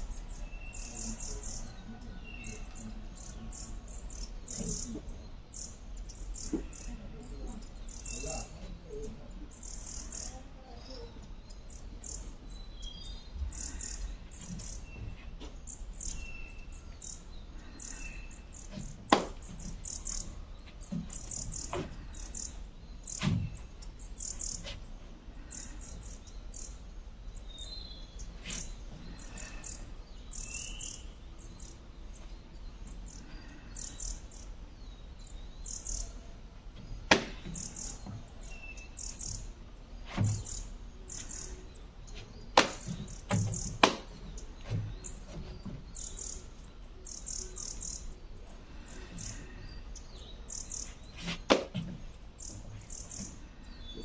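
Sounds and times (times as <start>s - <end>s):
small birds chirping: 0.0s - 54.0s
sharp knocks: 18.7s - 19.7s, 37.0s - 37.7s, 42.6s - 45.4s, 51.4s - 52.0s
dull thump: 23.2s - 23.6s, 40.0s - 40.5s, 51.2s - 52.1s
whistled bird notes: 27.4s - 31.8s.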